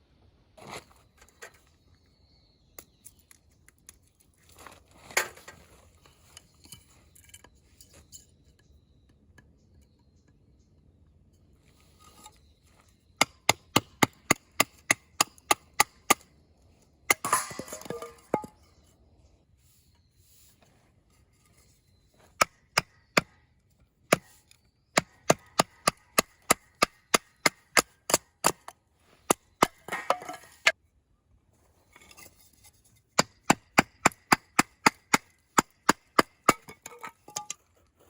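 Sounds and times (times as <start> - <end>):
axe chopping firewood: 13.2 - 16.3, 17.1 - 18.6, 22.4 - 23.4, 24.1 - 24.4, 25.0 - 28.7, 29.3 - 30.8, 33.2 - 37.6.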